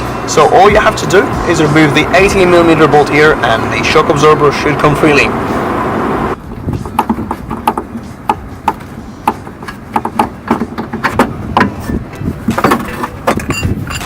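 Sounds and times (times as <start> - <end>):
tool clicking and knocking on metal: 6.8 - 11.9.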